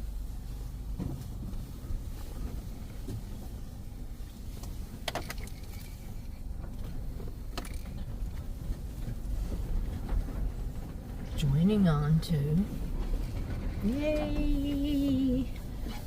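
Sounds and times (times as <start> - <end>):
car engine low and steady: 0.0 - 16.0.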